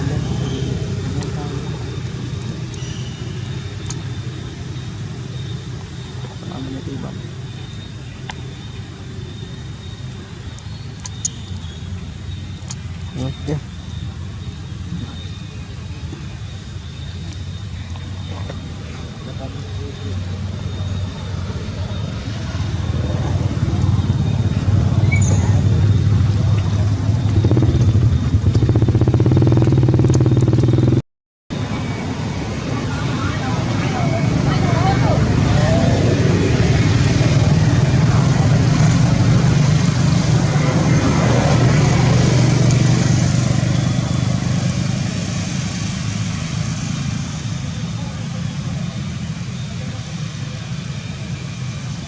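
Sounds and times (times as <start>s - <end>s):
motor engine running: 0.0s - 9.2s, 25.6s - 31.1s, 34.3s - 52.0s
motorbike engine running: 27.1s - 31.1s, 36.2s - 45.3s.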